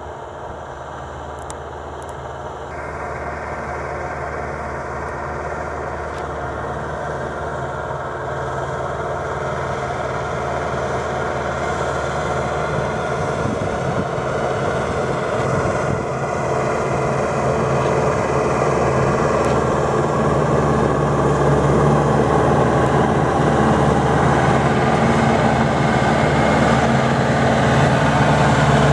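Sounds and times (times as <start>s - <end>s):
tractor engine running: 0.0s - 28.9s.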